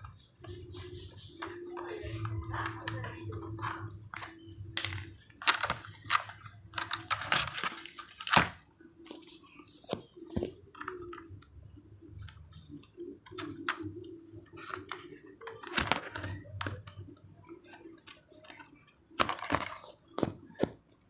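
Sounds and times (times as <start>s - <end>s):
plastic scraping rustles: 0.0s - 11.3s, 13.3s - 17.0s, 17.9s - 20.8s
plastic clicks and knocks: 4.1s - 8.6s, 14.6s - 17.0s, 17.9s - 20.8s.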